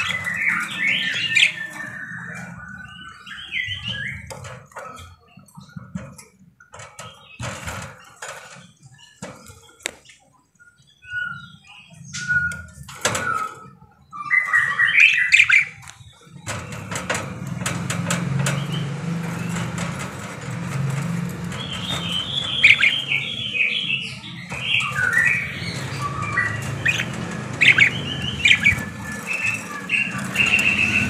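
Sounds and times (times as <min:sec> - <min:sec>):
budgerigars chirping: 0:00.0 - 0:04.3, 0:14.2 - 0:16.9, 0:20.8 - 0:31.0
steady rustling noise: 0:00.0 - 0:10.4, 0:15.3 - 0:31.0.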